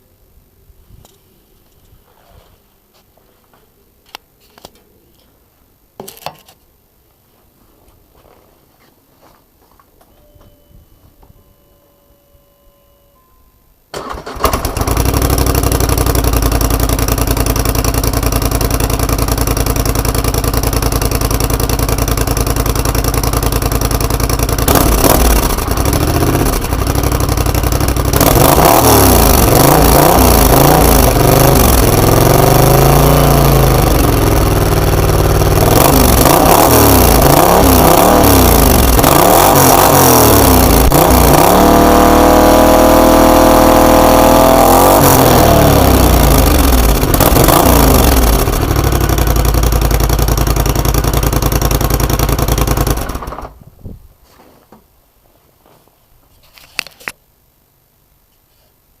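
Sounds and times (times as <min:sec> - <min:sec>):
motorcycle engine starting: 0:13.9 - 0:53.8
motorcycle engine idling and revving: 0:14.0 - 0:53.6.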